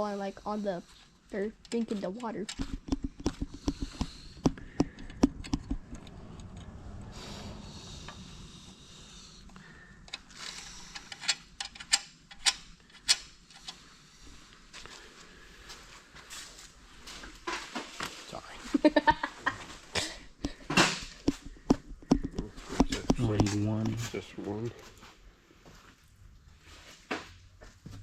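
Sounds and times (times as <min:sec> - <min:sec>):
sharp clicks and knocks: 0:01.6 - 0:06.8.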